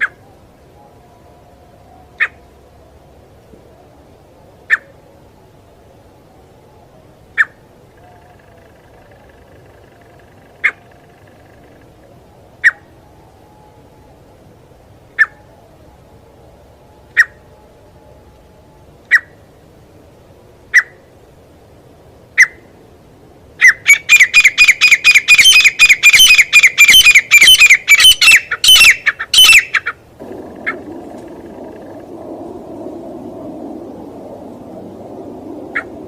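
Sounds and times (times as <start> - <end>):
francolin calling: 1.9 - 2.5, 6.8 - 14.4, 15.1 - 16.0, 17.0 - 19.5, 20.7 - 21.1, 23.6 - 32.2, 35.6 - 36.0.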